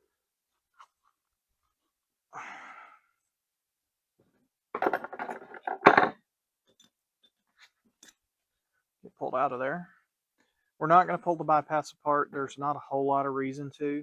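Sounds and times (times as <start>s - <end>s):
metallic clinks and knocks: 4.8s - 7.4s.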